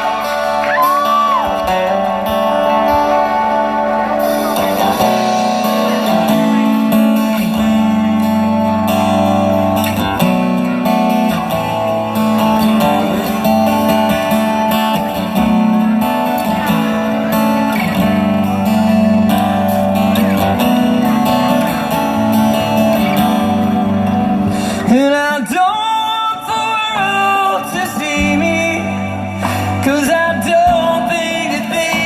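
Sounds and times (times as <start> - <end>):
bass line: 0.0 - 25.1
country band guitars: 0.0 - 32.0.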